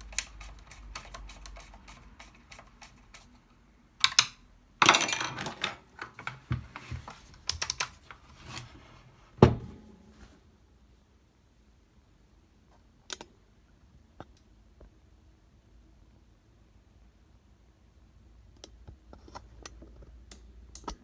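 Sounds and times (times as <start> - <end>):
plastic and metal parts clattering: 4.0 - 9.9.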